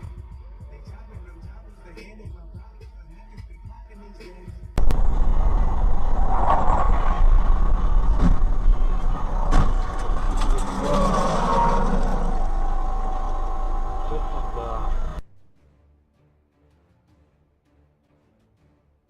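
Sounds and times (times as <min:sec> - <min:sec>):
car engine and road noise: 0:04.8 - 0:15.3.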